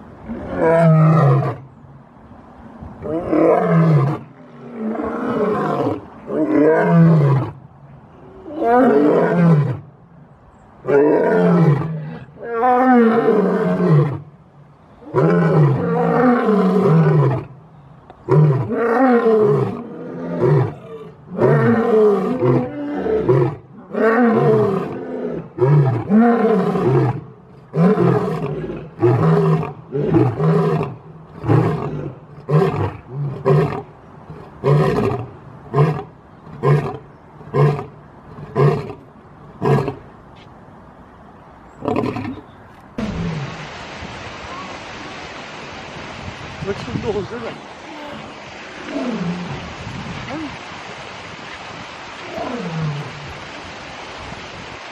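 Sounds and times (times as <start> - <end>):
lion roaring: 3.0 - 7.6, 52.2 - 53.1.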